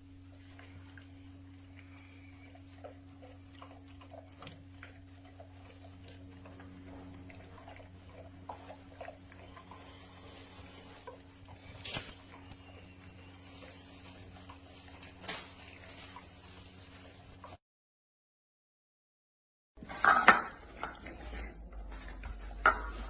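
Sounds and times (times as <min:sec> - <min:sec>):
dog chewing and licking: 0:00.0 - 0:17.6
steady low hum: 0:00.0 - 0:17.6.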